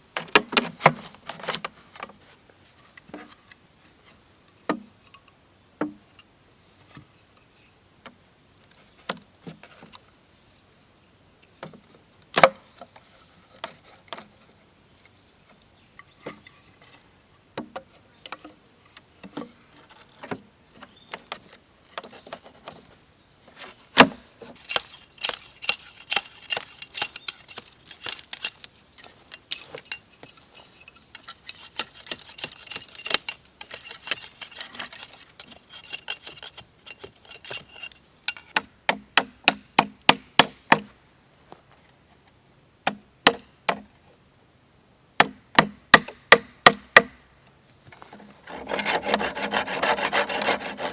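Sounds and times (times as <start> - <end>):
insects chirring: 0.0 - 50.9
knocks and taps on bamboo: 0.2 - 2.2, 4.7 - 5.2, 5.8 - 6.2, 11.6 - 13.0, 17.6 - 18.6, 24.0 - 30.4, 38.3 - 41.0, 42.8 - 43.9, 45.2 - 47.2.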